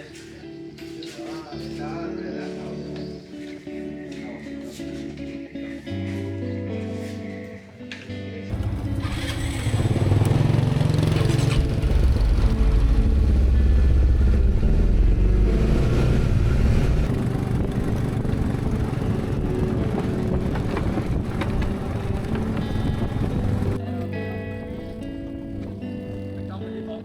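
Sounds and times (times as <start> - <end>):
motor engine deep rumble: 8.5 - 23.8.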